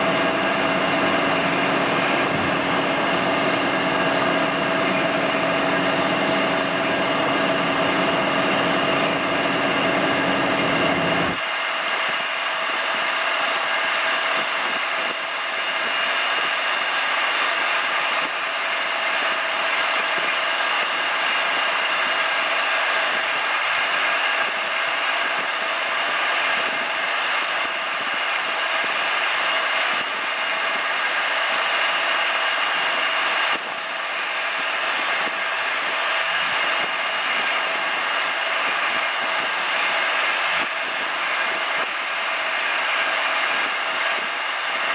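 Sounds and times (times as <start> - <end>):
low machine hum: 0.0 - 12.1
milling machine whine: 0.0 - 44.9.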